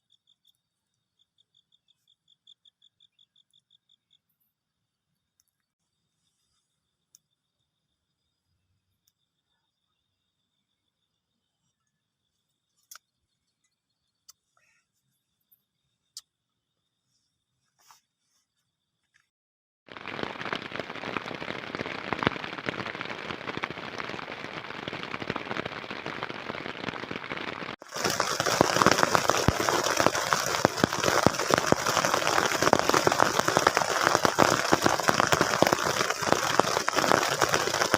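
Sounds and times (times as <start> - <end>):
heavy rain falling: 19.9 - 37.9.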